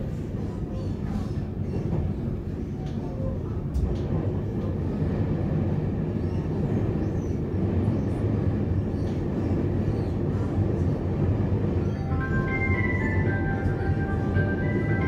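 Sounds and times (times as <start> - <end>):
train rumbling heard from inside: 0.0 - 15.0.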